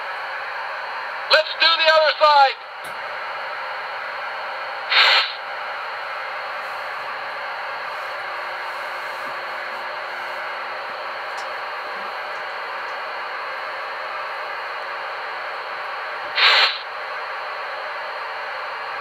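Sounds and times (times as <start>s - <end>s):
steam locomotive hissing: 4.9s - 5.4s, 16.4s - 16.9s.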